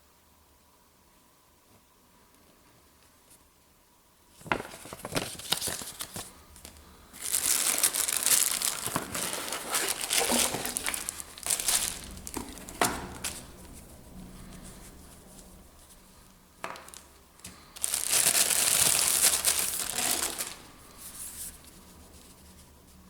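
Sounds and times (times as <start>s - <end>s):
packaging crinkling and rustling: 4.4s - 21.9s.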